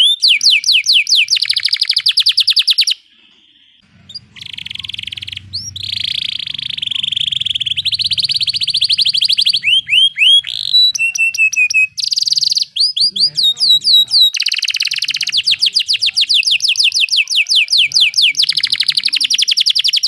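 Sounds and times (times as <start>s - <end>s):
canary singing trills: 0.0s - 20.0s.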